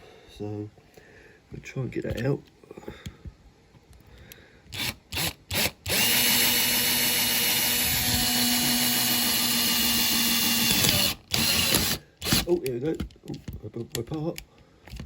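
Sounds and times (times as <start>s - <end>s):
small power drill drilling: 4.7s - 12.6s.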